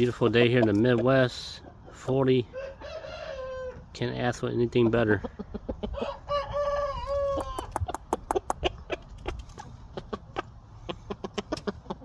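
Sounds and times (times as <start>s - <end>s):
chicken clicks and clucks: 0.0s - 2.9s, 4.5s - 12.0s
rooster crowing: 2.6s - 3.8s, 6.0s - 7.7s.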